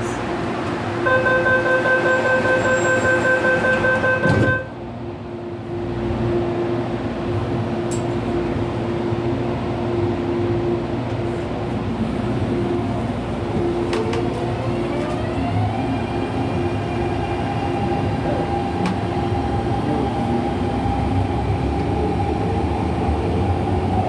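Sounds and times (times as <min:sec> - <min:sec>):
train doors shutting thud: 0:00.0 - 0:04.8
train running hum: 0:00.0 - 0:24.0
pulsing door warning tone: 0:01.0 - 0:04.7.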